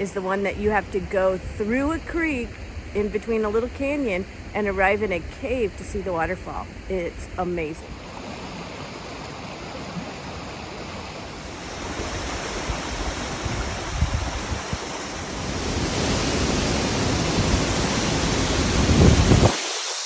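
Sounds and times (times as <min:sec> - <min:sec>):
waterfall roaring: 0:07.0 - 0:20.0
wind buffeting microphone: 0:07.6 - 0:19.6.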